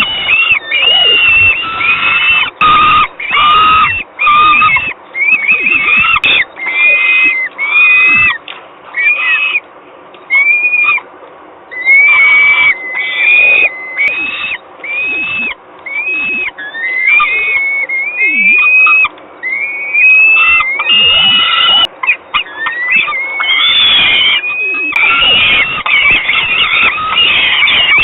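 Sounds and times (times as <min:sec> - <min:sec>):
falcon calling: 0:00.0 - 0:09.6, 0:10.3 - 0:11.0, 0:11.7 - 0:28.0.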